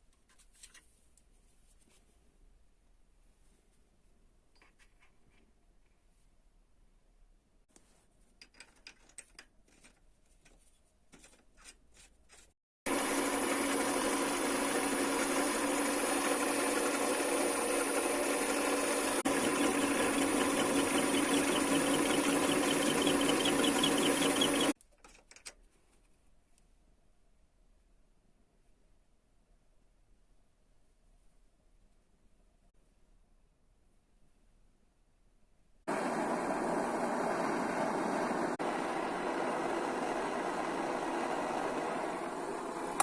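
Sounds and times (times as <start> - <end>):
lathe motor whining: 12.9 - 24.8, 35.9 - 43.0.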